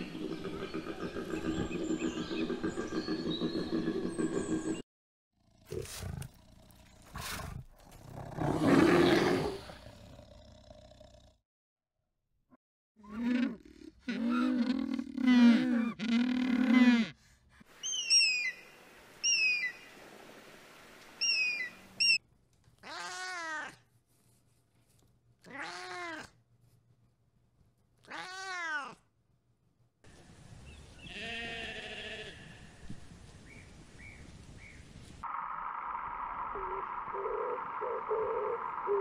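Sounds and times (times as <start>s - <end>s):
cat meowing: 22.8s - 23.8s, 25.4s - 26.3s, 28.0s - 29.0s
sheep bleating: 31.1s - 32.6s.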